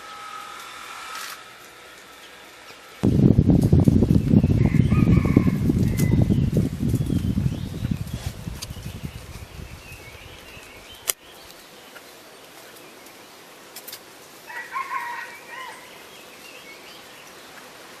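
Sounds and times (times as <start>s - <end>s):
faint outdoor background: 0.0s - 18.0s
distant rooster crowing: 4.4s - 6.5s, 14.5s - 16.1s.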